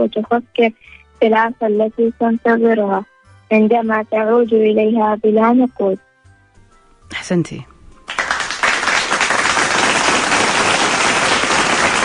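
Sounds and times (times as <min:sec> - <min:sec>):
crowd applause: 0:08.1 - 0:12.0.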